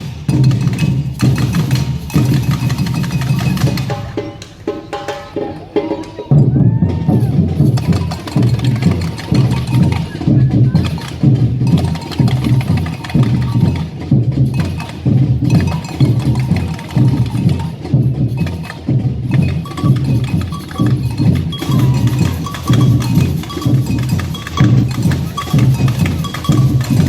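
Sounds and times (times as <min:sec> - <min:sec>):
deep bass drums: 0:06.3 - 0:27.0
bell strikes: 0:07.6 - 0:17.8, 0:19.3 - 0:27.0.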